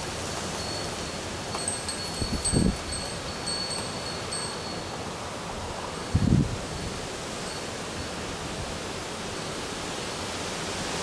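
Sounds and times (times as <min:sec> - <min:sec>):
steady rain hiss: 0:00.0 - 0:11.0
high thin ringing tone: 0:00.6 - 0:05.2.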